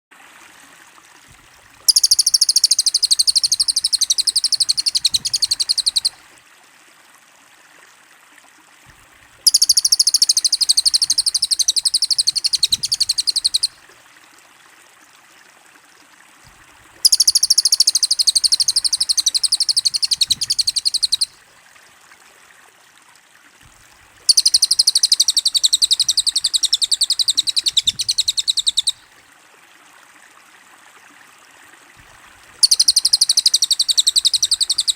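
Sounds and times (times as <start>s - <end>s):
faint steady hiss: 0.2s - 34.9s
rapid high-pitched bird trill: 1.9s - 6.2s, 9.5s - 13.7s, 17.0s - 21.3s, 24.3s - 29.0s, 32.6s - 34.9s.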